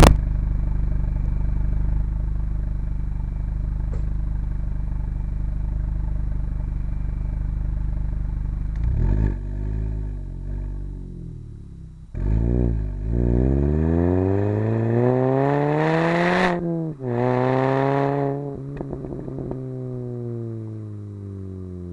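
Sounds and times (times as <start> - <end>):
car engine idling: 0.0 - 13.4, 18.1 - 21.9
engine revving: 8.1 - 21.9.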